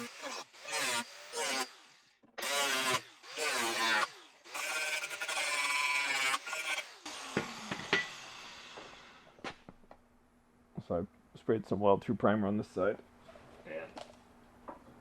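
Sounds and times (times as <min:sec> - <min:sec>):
power tool cutting sheet metal: 0:00.0 - 0:09.3.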